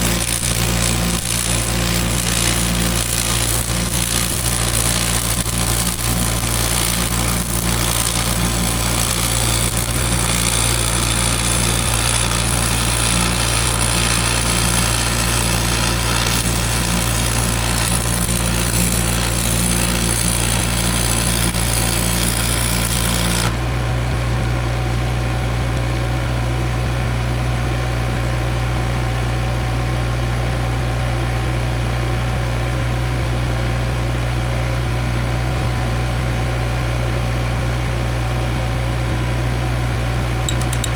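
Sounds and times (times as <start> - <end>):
welding hissing crackle: 0.0 - 23.6
engine running: 0.0 - 40.9.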